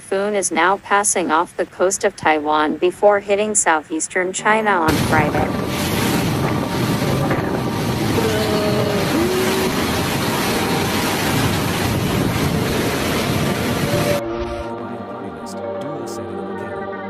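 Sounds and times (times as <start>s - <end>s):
rushing water: 4.8s - 14.8s
wind buffeting microphone: 4.9s - 14.7s
strong wind: 4.9s - 14.8s.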